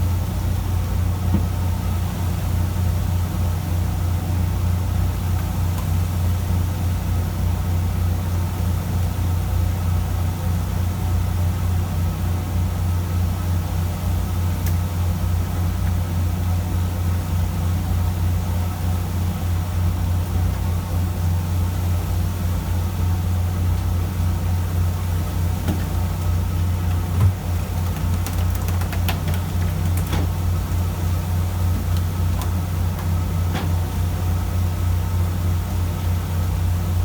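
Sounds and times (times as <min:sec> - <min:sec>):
boat engine humming: 0:12.4 - 0:37.0.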